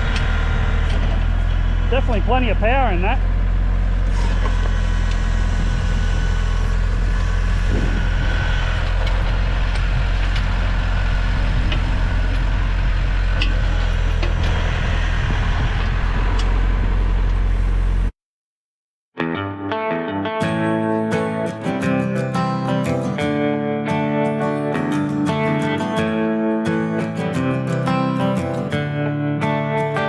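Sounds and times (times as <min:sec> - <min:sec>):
tractor engine running: 0:00.0 - 0:18.1.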